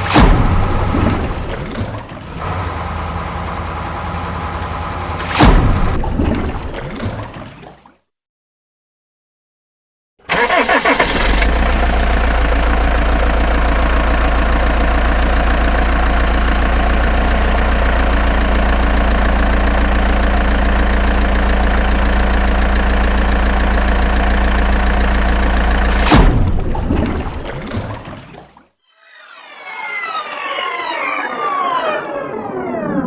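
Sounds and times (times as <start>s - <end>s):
vehicle engine starting and idling: 0.0s - 6.0s, 10.2s - 26.5s.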